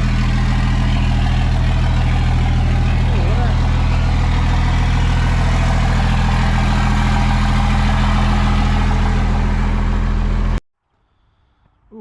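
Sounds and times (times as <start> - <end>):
diesel engine idling: 0.0 - 10.6.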